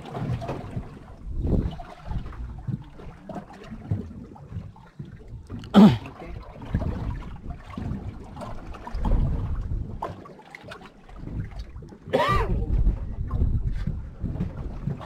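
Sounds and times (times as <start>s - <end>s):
water lapping around boat: 0.0s - 15.0s
wind noise: 0.5s - 2.8s, 6.6s - 10.1s, 11.2s - 15.0s.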